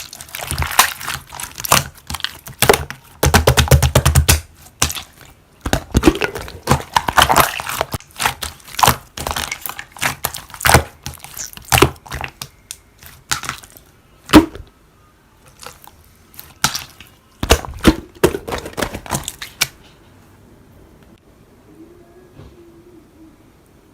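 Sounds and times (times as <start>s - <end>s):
slime popping and crackling: 0.0s - 14.7s, 15.6s - 19.7s.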